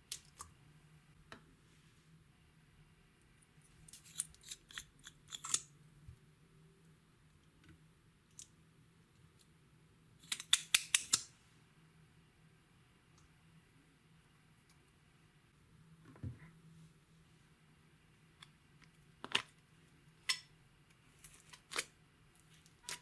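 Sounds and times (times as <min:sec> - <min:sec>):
sharp clicks and snaps: 0:10.2 - 0:11.3.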